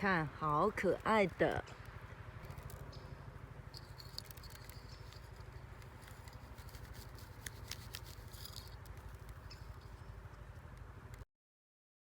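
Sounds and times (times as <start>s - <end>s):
twigs and leaves rustling: 3.7s - 10.4s.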